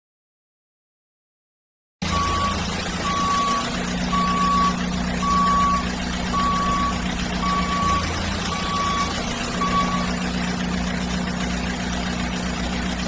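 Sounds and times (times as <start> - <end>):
reversing alarm beeps: 2.0 - 10.3
low engine hum: 2.0 - 13.0.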